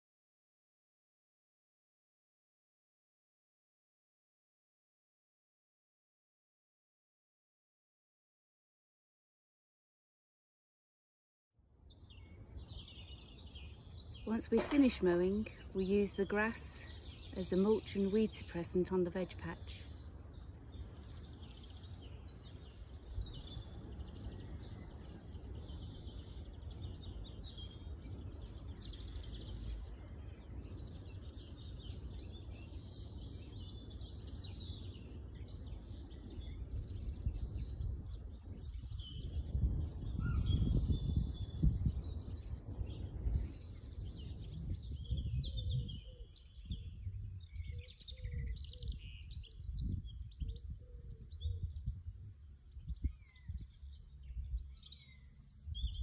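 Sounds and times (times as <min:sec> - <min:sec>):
birds singing and chirping: 0:11.7 - 0:56.0.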